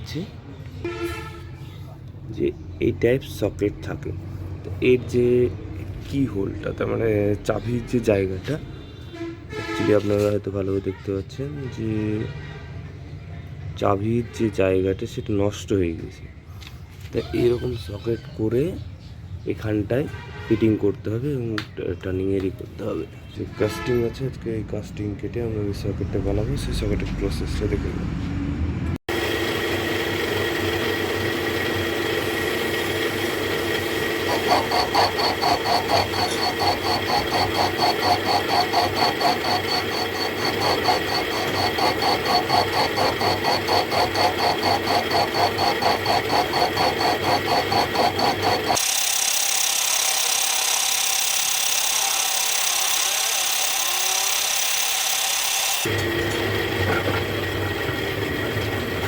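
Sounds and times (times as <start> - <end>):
metal-cutting machine running: 29.1 - 59.0.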